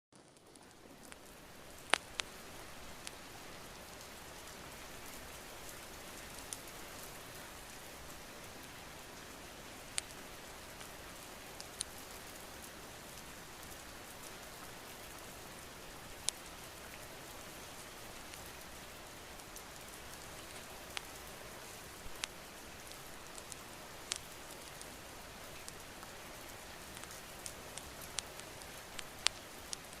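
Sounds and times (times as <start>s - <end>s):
steady rain: 0.1s - 30.0s
sharp clicks and pops: 1.8s - 2.3s, 27.0s - 29.9s.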